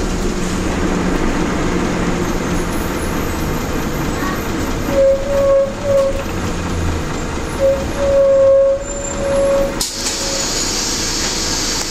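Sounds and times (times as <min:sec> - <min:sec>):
brakes squealing: 0:00.0 - 0:11.9
bus diesel engine rumbling: 0:00.0 - 0:11.9
air brakes hissing: 0:08.0 - 0:11.9.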